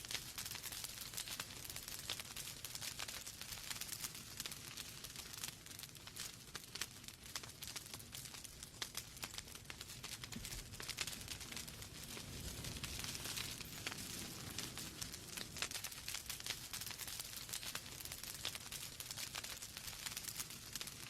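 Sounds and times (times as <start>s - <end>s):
flames hissing: 8.8s - 21.0s.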